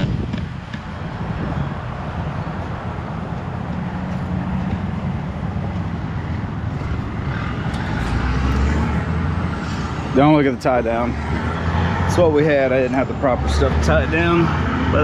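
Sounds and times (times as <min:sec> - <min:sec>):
deeper rumble: 0:00.0 - 0:15.0
vehicle engine running: 0:01.2 - 0:12.4.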